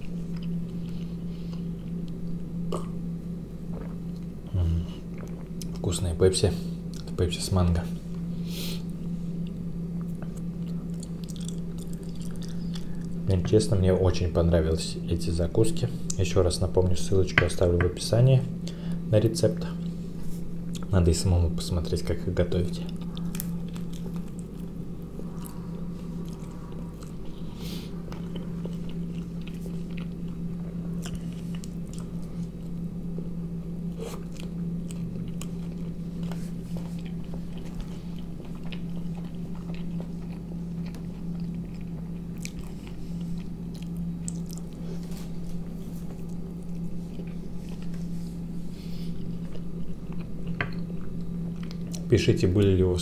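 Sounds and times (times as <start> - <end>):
low hum: 0.0 - 53.0
chewing with wet mouth clicks: 9.4 - 13.2, 22.8 - 25.6, 26.2 - 27.4, 28.1 - 32.8, 34.1 - 44.8, 46.1 - 48.0, 49.3 - 52.1.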